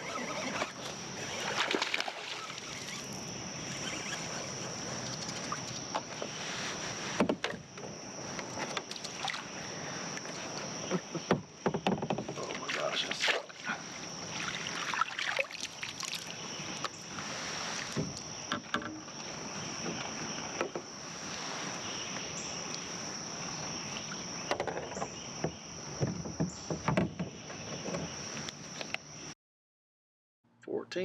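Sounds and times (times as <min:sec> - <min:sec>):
high-pitched insect drone: 0:00.0 - 0:06.0
water sloshing against hull: 0:00.0 - 0:28.2.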